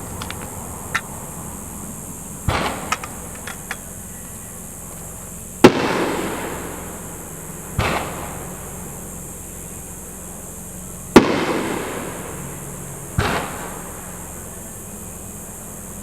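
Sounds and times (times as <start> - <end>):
firework shells bursting: 0.0 - 4.2
firework crackles: 4.8 - 8.6, 11.1 - 12.6.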